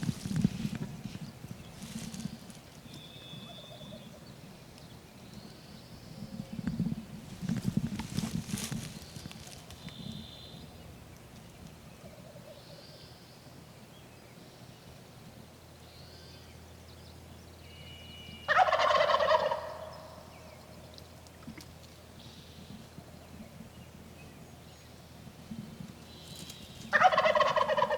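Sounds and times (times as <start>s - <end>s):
faint songbird notes: 1.1s - 6.9s, 7.5s - 15.0s
turkey gobbling: 18.5s - 20.1s, 26.9s - 27.9s.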